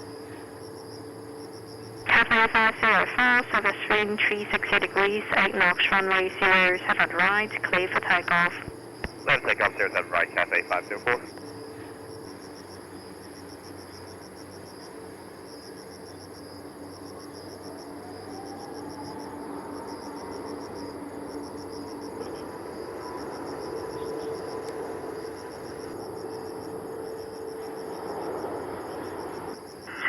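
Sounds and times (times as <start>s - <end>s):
jet engine rumble: 0.0s - 14.0s, 19.3s - 30.0s
faint rising engine whine: 0.0s - 29.7s
insects chirping: 0.0s - 30.0s.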